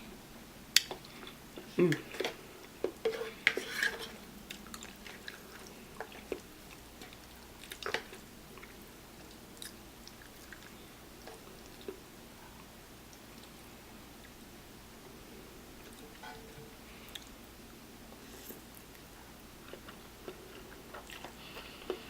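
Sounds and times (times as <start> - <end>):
wet chewing and smacking: 4.4 - 13.6, 18.7 - 22.0.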